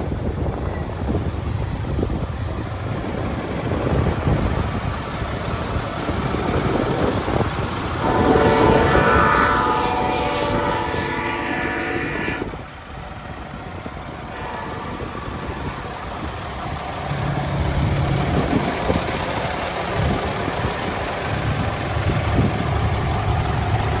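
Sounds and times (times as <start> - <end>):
diesel truck engine running: 0.0 - 24.0
truck horn: 7.9 - 17.0.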